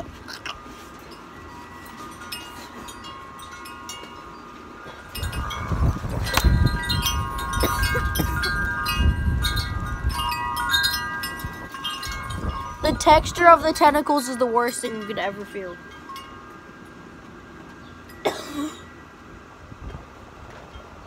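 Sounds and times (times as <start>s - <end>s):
wind chimes ringing: 0.0s - 19.5s
wind buffeting microphone: 4.8s - 14.3s, 19.6s - 21.0s.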